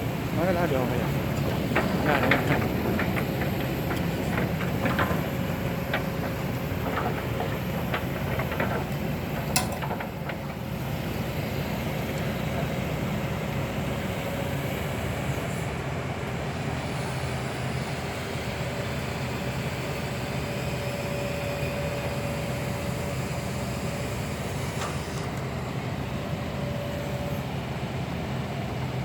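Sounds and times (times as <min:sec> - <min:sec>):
diesel machinery engine drone: 0:00.0 - 0:29.0
light clicks and knocks: 0:00.4 - 0:11.1.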